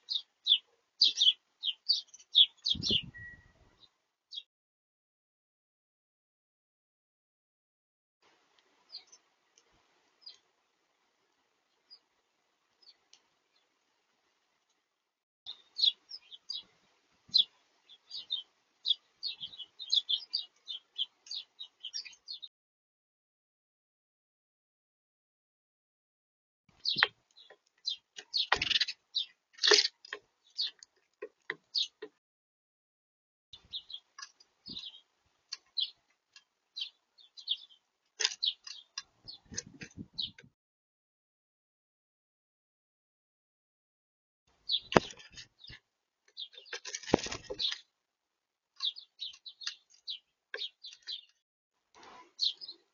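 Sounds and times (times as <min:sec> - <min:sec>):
small birds chirping: 0:00.0 - 0:04.5, 0:08.8 - 0:10.5, 0:11.6 - 0:13.8, 0:15.5 - 0:22.5, 0:26.7 - 0:32.2, 0:33.6 - 0:40.5, 0:44.5 - 0:48.0, 0:48.7 - 0:51.4, 0:52.0 - 0:52.9.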